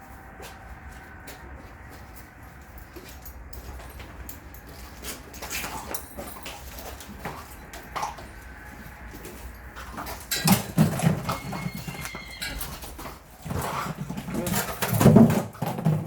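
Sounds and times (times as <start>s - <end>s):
loud rough animal noises: 5.1s - 14.9s.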